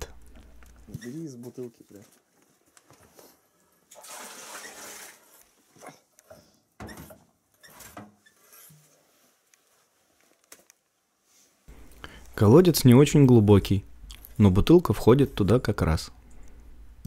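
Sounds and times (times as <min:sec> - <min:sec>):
bottle filling with water: 0:03.9 - 0:05.4
water splashes and glugs: 0:03.9 - 0:06.0.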